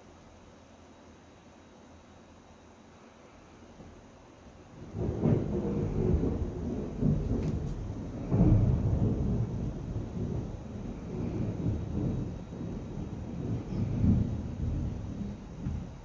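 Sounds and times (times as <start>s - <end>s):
thunder rumbling: 4.5s - 16.0s.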